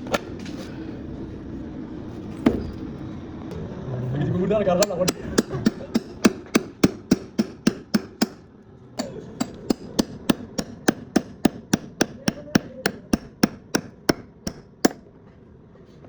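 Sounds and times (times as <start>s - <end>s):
hammer blows: 4.8s - 8.4s, 9.0s - 15.0s.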